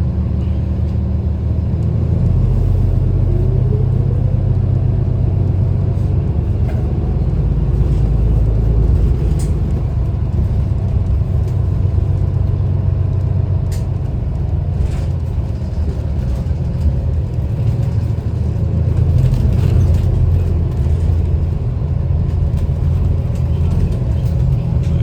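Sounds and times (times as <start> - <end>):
bus engine and road rumble: 0.0 - 25.0.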